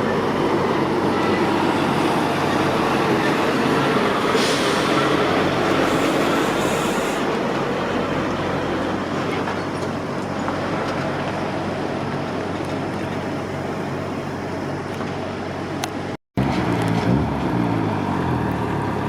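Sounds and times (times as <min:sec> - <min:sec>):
diesel lorry engine drone: 0:00.0 - 0:19.0
heavy traffic rushing: 0:00.0 - 0:19.0
high hiss: 0:05.8 - 0:07.4.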